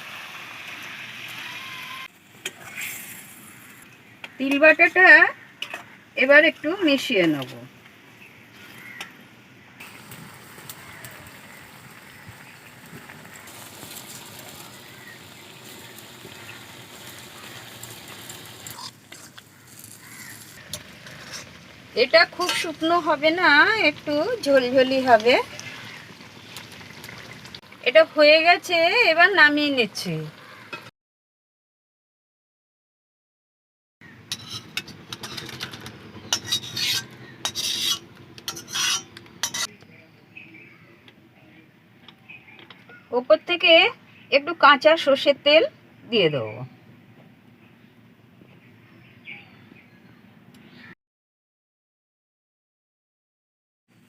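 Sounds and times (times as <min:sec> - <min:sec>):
curry sizzling and simmering: 0:00.0 - 0:30.9, 0:34.0 - 0:39.7
spatula scraping and clicking: 0:18.7 - 0:21.6, 0:34.3 - 0:39.7.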